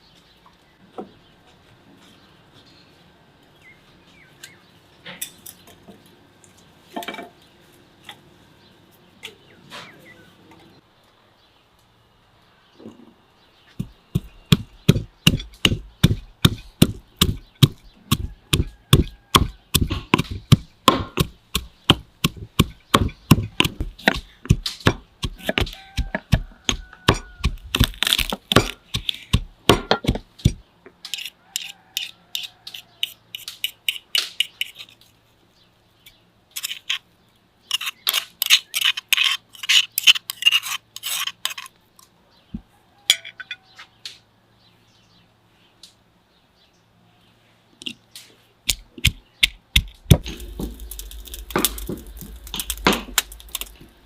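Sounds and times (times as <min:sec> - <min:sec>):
chopping on a wooden board: 0:13.8 - 0:30.6.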